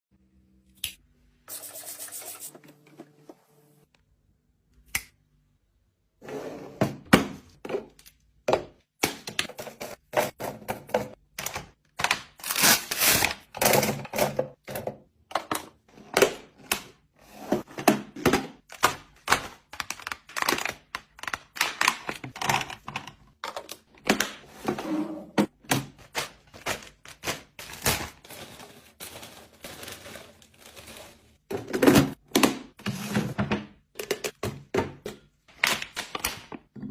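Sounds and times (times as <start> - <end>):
containers clacking and thunking: 6.7 - 12.1, 13.4 - 36.9
packages rustling: 25.8 - 31.4.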